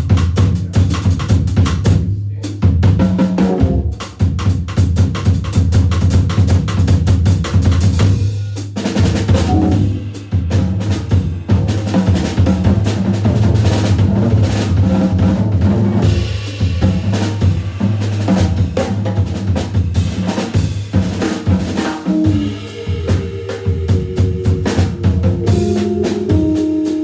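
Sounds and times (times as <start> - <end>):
busy jazz drumming: 0.0 - 27.0
organ bass note held: 3.4 - 4.0, 9.5 - 10.3, 22.1 - 27.0
organ chords: 3.4 - 4.1, 9.5 - 10.4, 22.0 - 27.0.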